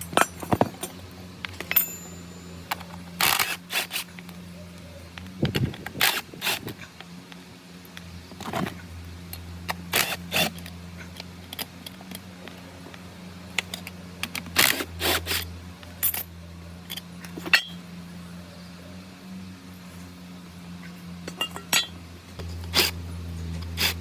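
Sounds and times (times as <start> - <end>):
metal tools clinking and knocking: 0.0 - 3.5, 16.9 - 17.8, 21.3 - 22.0
steady low hum: 0.0 - 24.0.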